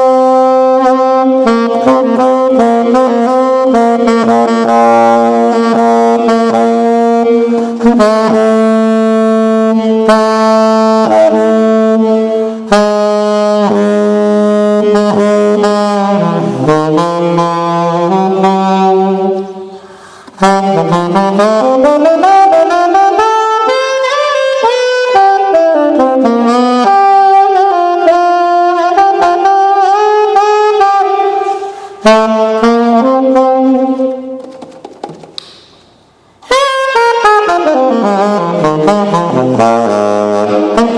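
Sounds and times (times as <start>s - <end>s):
saxophone slow melody: 0.0s - 34.7s, 36.4s - 40.9s.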